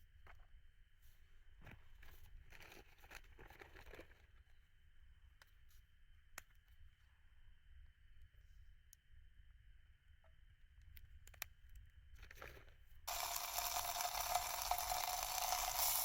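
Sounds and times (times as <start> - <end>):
rustling and crinkling: 0.2 - 4.6.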